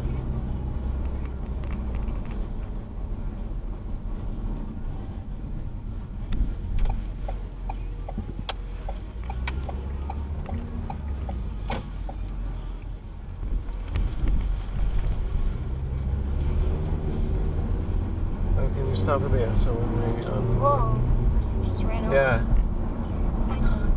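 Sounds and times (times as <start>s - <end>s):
car road and engine noise: 0.0s - 23.9s
light ticks: 6.3s - 17.0s.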